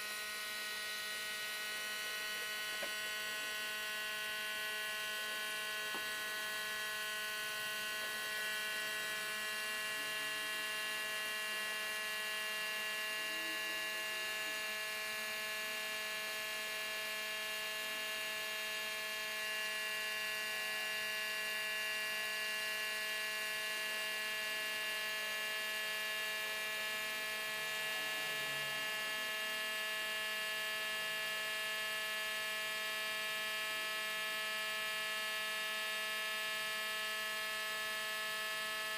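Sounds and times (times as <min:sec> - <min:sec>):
steady electric hum: 0:00.0 - 0:38.9.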